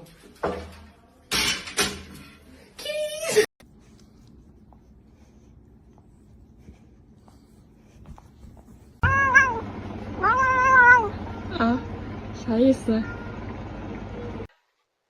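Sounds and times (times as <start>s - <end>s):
faint room hum: 2.5s - 15.0s
cat meowing: 9.0s - 9.6s, 10.2s - 11.2s.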